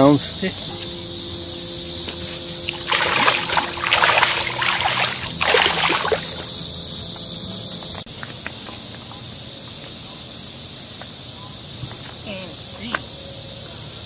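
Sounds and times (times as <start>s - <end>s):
insects droning: 0.0s - 14.0s
water splashing and rustling: 0.4s - 6.6s.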